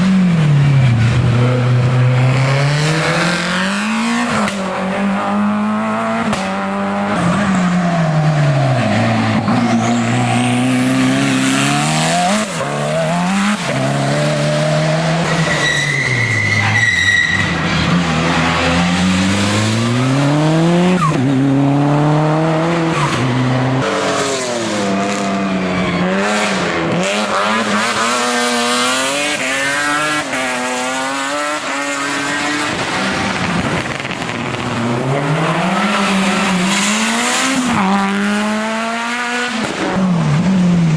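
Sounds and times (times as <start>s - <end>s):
race car engine at full throttle: 0.0s - 40.9s
tyre squeal: 15.2s - 18.0s.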